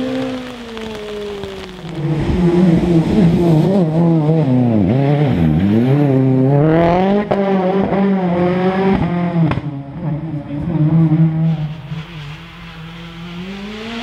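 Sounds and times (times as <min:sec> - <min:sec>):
sharp cracks: 0:00.0 - 0:02.4
rally car engine revving: 0:00.0 - 0:14.0.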